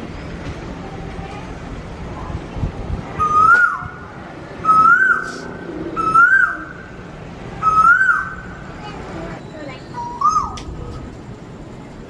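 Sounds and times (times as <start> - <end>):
bird whistling call: 3.2 - 4.0, 4.6 - 6.8, 7.6 - 8.4, 10.0 - 10.6.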